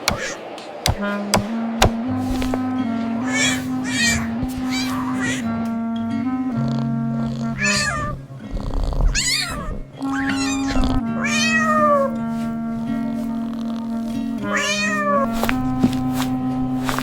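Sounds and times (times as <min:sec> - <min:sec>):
cat meowing: 0:00.0 - 0:00.4, 0:03.2 - 0:05.5, 0:07.4 - 0:08.2, 0:09.0 - 0:12.2, 0:14.4 - 0:15.6.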